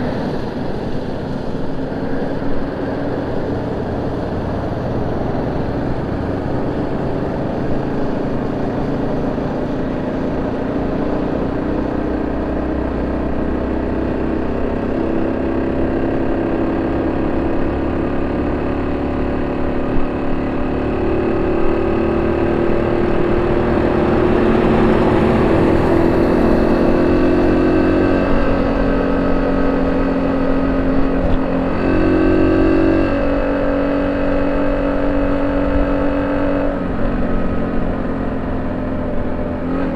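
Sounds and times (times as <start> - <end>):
small motorcycle engine running: 5.8 - 39.9.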